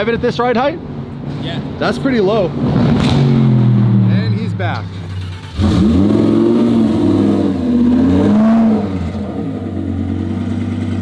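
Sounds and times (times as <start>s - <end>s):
car engine revving and idling: 2.4s - 11.0s.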